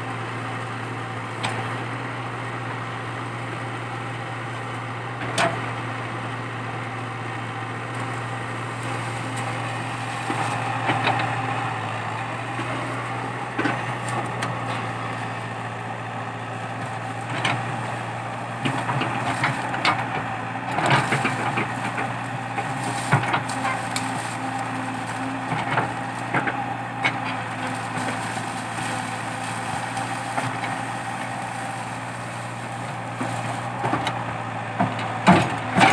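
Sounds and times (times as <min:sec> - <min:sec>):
excavator diesel engine running: 0:00.0 - 0:35.9
wood cracking and snapping: 0:20.9 - 0:33.9.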